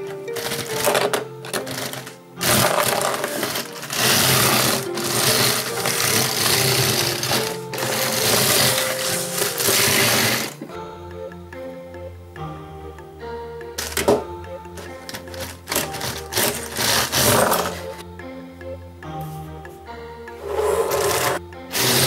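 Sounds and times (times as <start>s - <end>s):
background music: 0.0s - 22.0s
rapid mechanical rattling: 0.4s - 10.6s, 15.0s - 18.0s.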